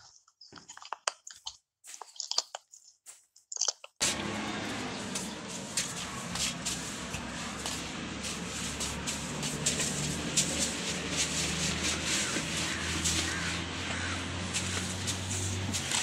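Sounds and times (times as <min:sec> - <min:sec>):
clicks and scrapes: 0:00.0 - 0:04.0
scuffing footsteps: 0:04.0 - 0:13.5.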